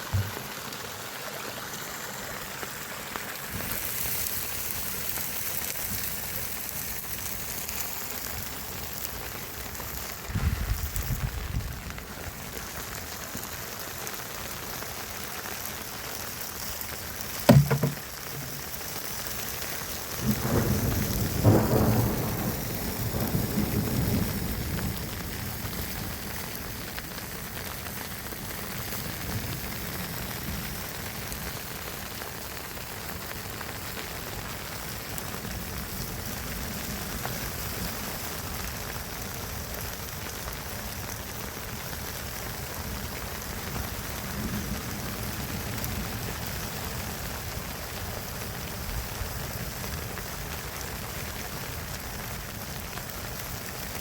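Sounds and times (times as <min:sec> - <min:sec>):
sharp thump: 0:00.0 - 0:00.4, 0:17.5 - 0:18.6
rushing water hiss: 0:00.0 - 0:54.0.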